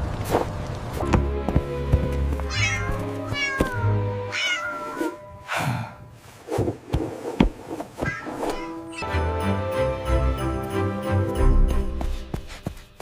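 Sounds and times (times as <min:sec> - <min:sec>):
background music: 0:01.0 - 0:06.2, 0:08.5 - 0:13.0
cat meowing: 0:02.5 - 0:05.3, 0:08.0 - 0:09.0.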